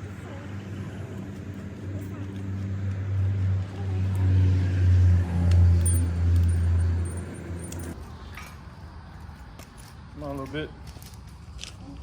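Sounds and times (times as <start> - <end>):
vehicle engine humming: 0.0 - 9.6.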